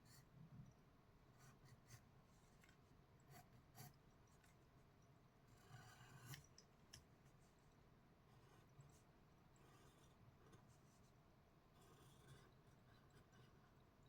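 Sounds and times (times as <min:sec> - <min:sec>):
pencil scratching on paper: 0:08.3 - 0:13.8.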